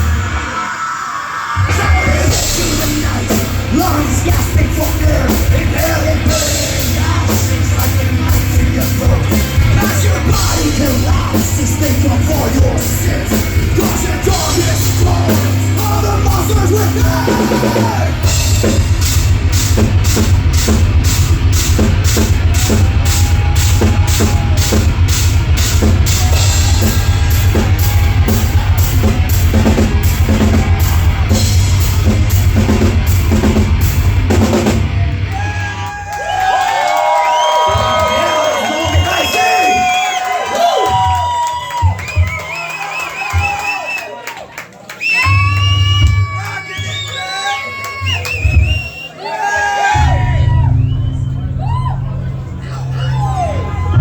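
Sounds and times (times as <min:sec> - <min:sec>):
bass guitar: 0:00.0 - 0:00.5, 0:01.6 - 0:39.3, 0:49.8 - 0:54.0
distorted electric guitars: 0:01.5 - 0:36.4
drum kit beat: 0:01.7 - 0:43.9, 0:45.2 - 0:47.0.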